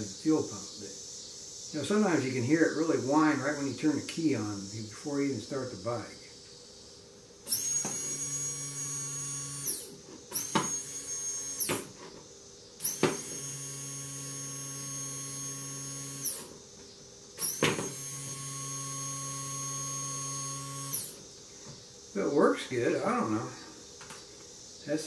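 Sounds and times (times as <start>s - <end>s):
electric fuel pump whine: 7.4s - 21.8s.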